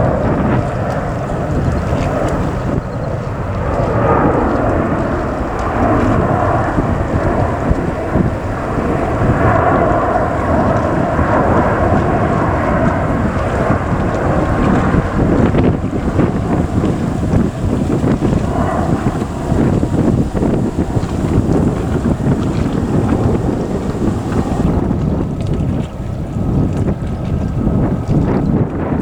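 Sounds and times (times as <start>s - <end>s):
jet airliner taking off: 0.0s - 25.3s.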